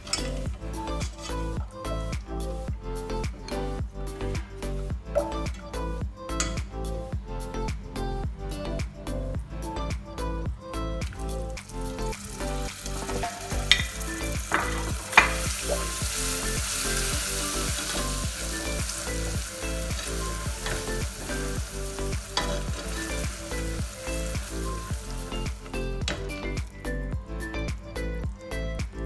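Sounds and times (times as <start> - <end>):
caramel sizzling in a pan: 11.5 - 26.3.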